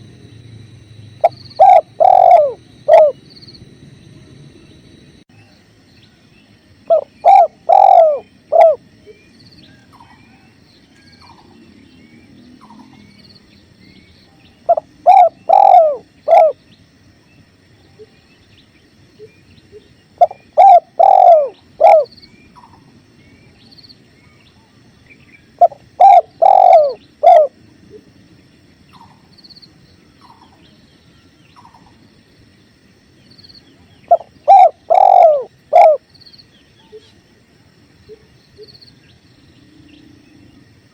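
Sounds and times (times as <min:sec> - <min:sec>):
dove cooing: 0:01.2 - 0:03.2, 0:06.9 - 0:08.8, 0:14.7 - 0:16.6, 0:20.2 - 0:22.8, 0:25.5 - 0:28.1, 0:34.0 - 0:36.1.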